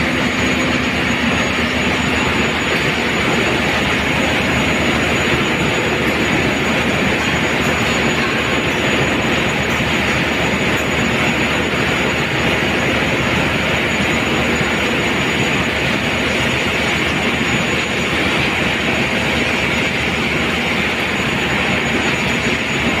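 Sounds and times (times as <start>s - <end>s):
engine room machinery roar: 0.0s - 23.0s.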